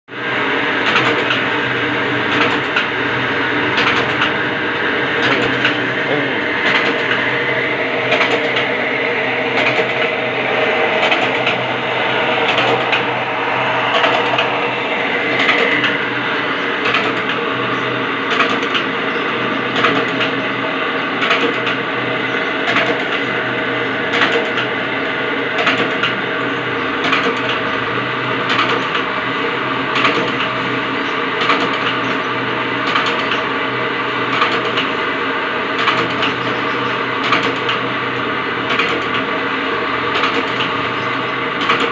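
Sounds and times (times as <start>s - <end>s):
machine humming: 0.1s - 41.9s
sharp machine clicks: 0.8s - 1.4s, 2.2s - 2.9s, 3.7s - 4.4s, 5.2s - 7.4s, 8.0s - 8.8s, 9.5s - 14.6s, 15.3s - 16.0s, 16.6s - 19.0s, 19.6s - 20.4s, 21.2s - 23.3s, 32.8s - 33.5s, 35.8s - 36.4s, 37.2s - 37.9s, 38.6s - 39.3s, 40.1s - 40.7s, 41.6s - 41.9s.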